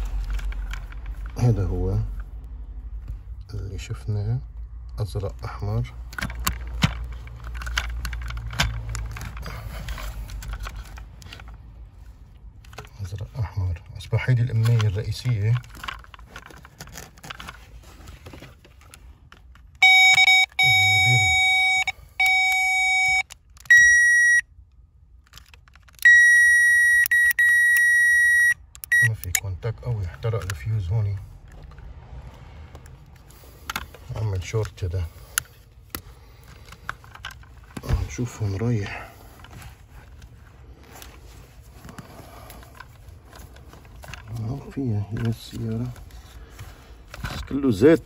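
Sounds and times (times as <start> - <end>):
hands handling wiring and parts: 0.0 - 3.4, 4.5 - 48.0
circuit tester beeping: 19.8 - 24.4, 26.0 - 29.4.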